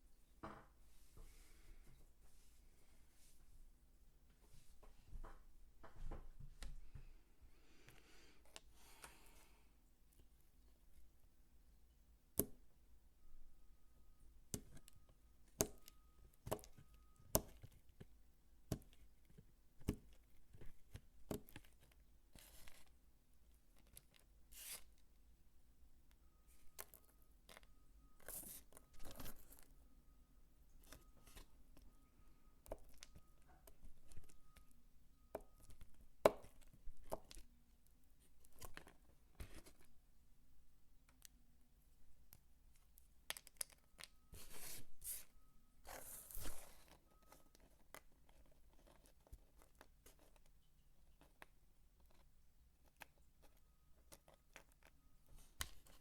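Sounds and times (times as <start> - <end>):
knife chopping soap: 14.5 - 18.1, 18.7 - 22.6, 35.3 - 37.5.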